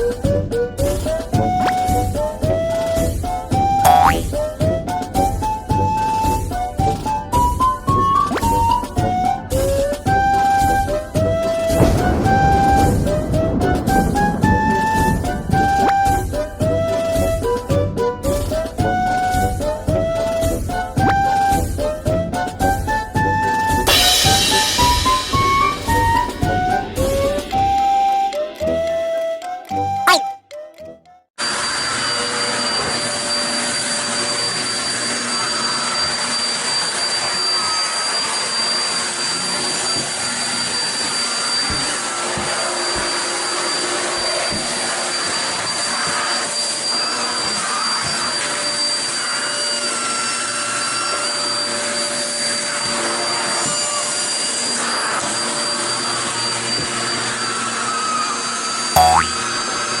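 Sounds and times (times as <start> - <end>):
brief sharp sound: 30.1 - 30.3, 59.0 - 59.4
vacuum cleaner running: 31.4 - 58.9.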